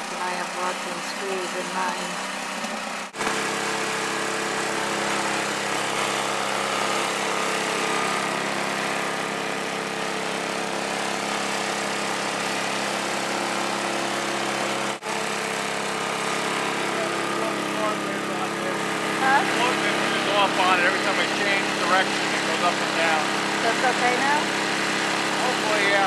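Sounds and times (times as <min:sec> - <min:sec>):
small petrol engine running: 0:00.0 - 0:26.0.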